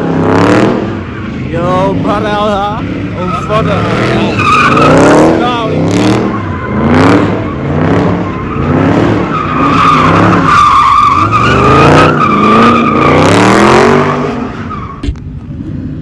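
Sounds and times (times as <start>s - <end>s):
car engine revving: 0.0s - 16.0s
tyres squealing: 3.2s - 6.8s.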